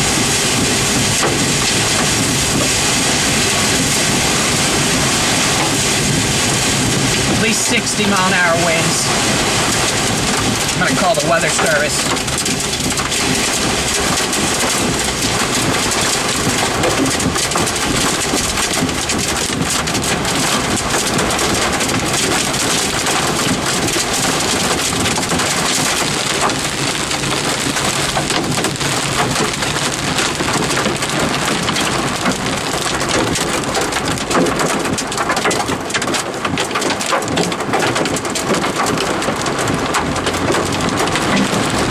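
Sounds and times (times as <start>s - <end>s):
heavy rain and wind: 0.0s - 41.9s.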